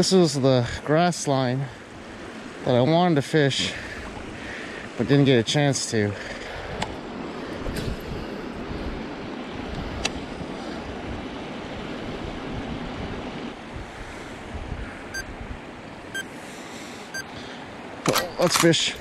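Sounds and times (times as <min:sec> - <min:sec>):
wind buffeting microphone: 0:06.5 - 0:16.1.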